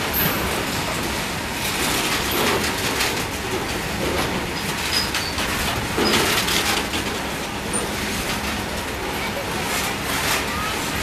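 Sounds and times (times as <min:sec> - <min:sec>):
freight train wheels rumbling: 0:00.0 - 0:11.0
train wagons clattering: 0:00.0 - 0:11.0.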